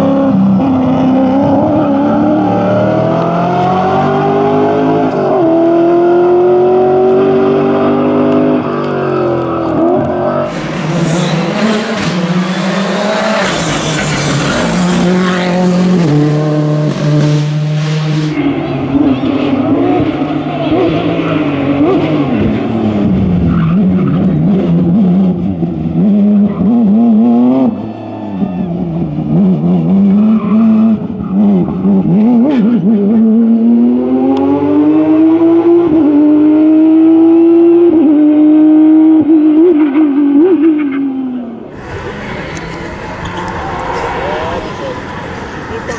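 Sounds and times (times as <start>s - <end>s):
rally car engine revving: 0.0s - 45.9s.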